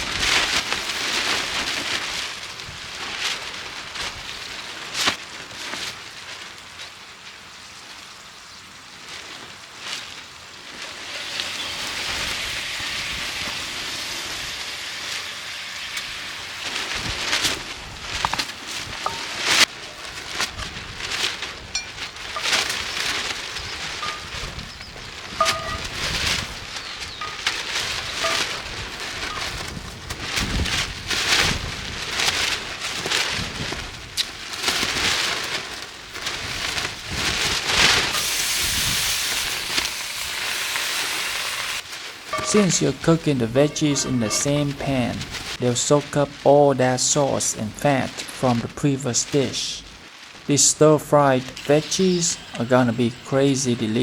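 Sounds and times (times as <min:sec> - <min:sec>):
sharp fat crackles: 0:08.9 - 0:54.0
vegetables sizzling in a pan: 0:10.3 - 0:20.8, 0:21.6 - 0:29.6, 0:38.1 - 0:45.6, 0:51.6 - 0:54.0
meat sizzling in a pan: 0:10.8 - 0:17.3, 0:38.1 - 0:43.0.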